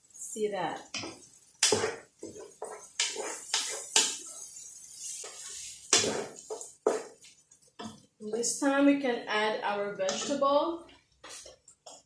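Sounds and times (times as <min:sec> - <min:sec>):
utensil scraping a cooking pot: 0:00.9 - 0:08.6.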